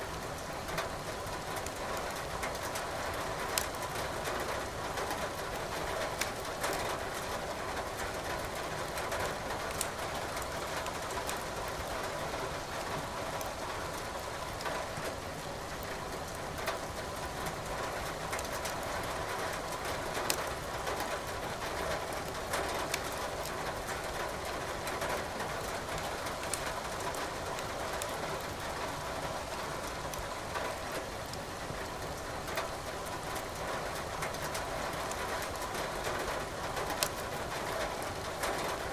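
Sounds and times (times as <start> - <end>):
wood fire crackling: 9.7 - 10.0, 22.1 - 23.6, 25.4 - 28.6, 36.9 - 37.2.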